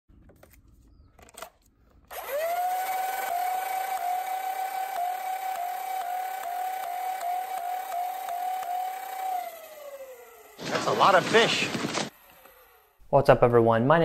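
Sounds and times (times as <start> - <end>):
blaster flywheel motors whining: 2.1 - 13.0.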